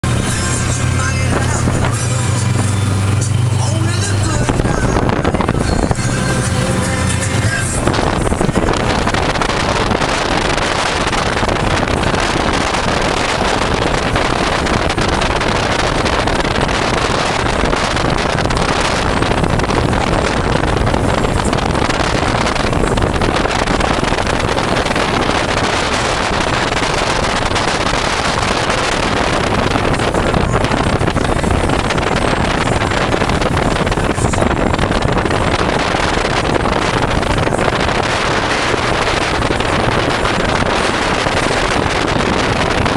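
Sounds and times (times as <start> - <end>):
boat engines running: 0.0 - 42.9
water noise: 0.0 - 42.9
wind buffeting microphone: 0.0 - 42.9.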